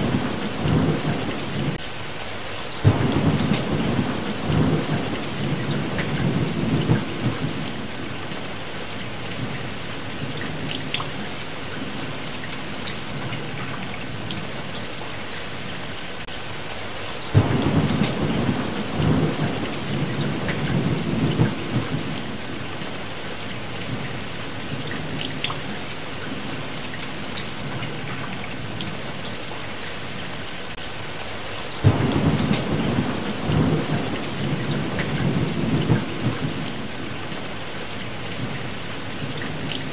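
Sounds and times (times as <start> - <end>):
rolling thunder: 0.0 - 1.8, 2.8 - 7.9, 17.3 - 22.4, 31.8 - 37.0
heavy rain: 0.0 - 39.9.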